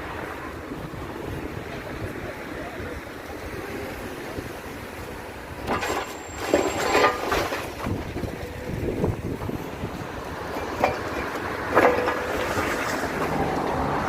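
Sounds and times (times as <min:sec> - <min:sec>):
wind rumbling on microphone: 0:00.0 - 0:14.0
metallic clanking and squealing: 0:05.6 - 0:08.0.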